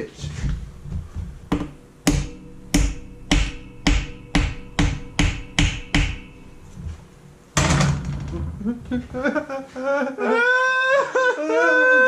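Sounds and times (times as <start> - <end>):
hammer striking metal engine block: 1.5 - 6.9.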